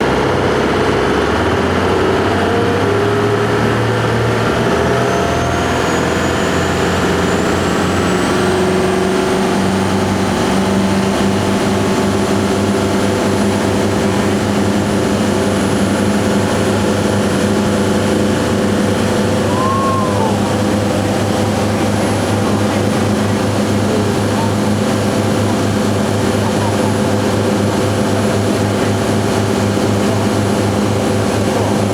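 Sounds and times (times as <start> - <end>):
boat engine droning: 0.0 - 31.9
faint high whine: 18.9 - 22.8.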